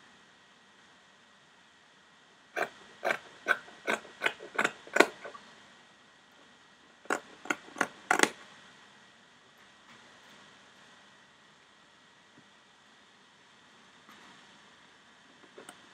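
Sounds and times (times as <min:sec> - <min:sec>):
scissors snipping through fabric: 0:02.6 - 0:05.4.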